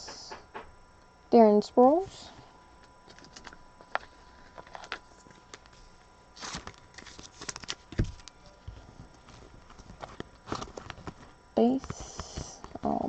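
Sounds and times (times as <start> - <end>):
trading cards rustling and clicking: 3.0 - 5.8, 6.4 - 12.8.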